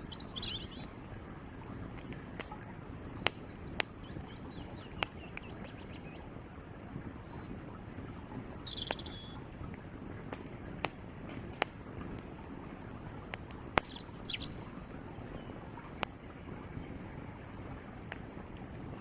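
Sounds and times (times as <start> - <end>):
bird chirping: 0.0 - 1.0, 3.1 - 6.4, 7.2 - 9.4, 13.6 - 15.6
creek water rushing: 0.0 - 19.0
wood fire crackling: 0.0 - 19.0.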